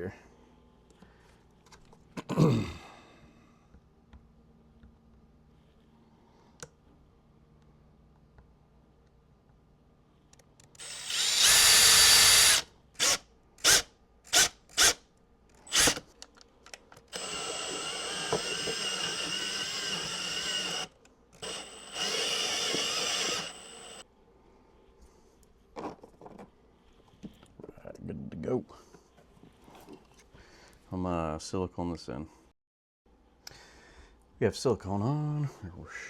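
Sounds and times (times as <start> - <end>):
power drill cutting plastic: 10.8 - 15.0, 15.7 - 16.0, 17.1 - 24.0.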